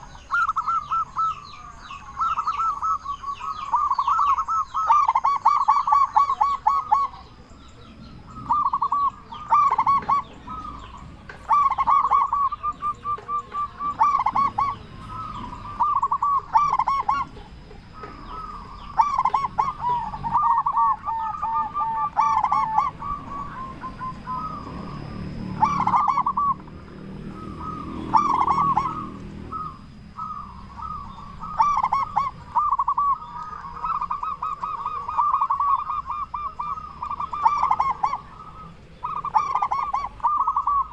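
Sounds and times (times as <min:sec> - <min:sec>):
doves cooing: 0:00.0 - 0:40.9.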